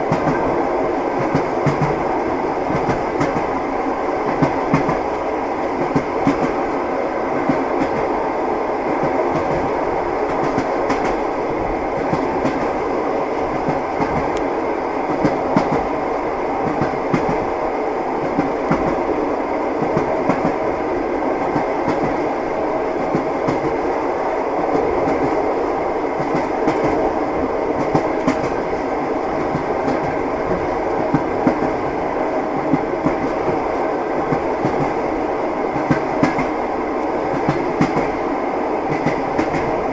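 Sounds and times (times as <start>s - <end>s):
train rumble: 0.0s - 39.9s.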